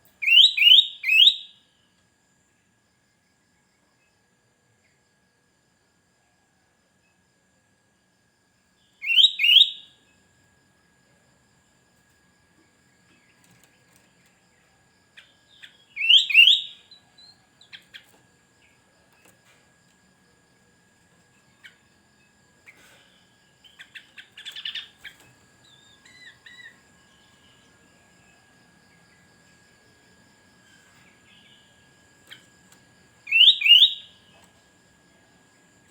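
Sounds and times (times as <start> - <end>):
bird chirps: 0.2 - 1.6, 8.9 - 10.0, 15.2 - 18.8, 22.7 - 27.7, 33.3 - 34.4
faint steady high tone: 8.4 - 10.3, 14.2 - 17.8, 25.6 - 35.9
bird calling rising notes: 9.0 - 9.8, 16.0 - 16.8, 33.3 - 34.1.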